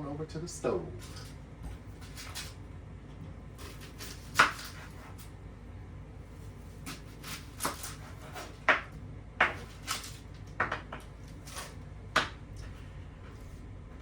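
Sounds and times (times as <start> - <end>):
knife chopping on cutting board: 3.6 - 5.3, 6.8 - 12.4.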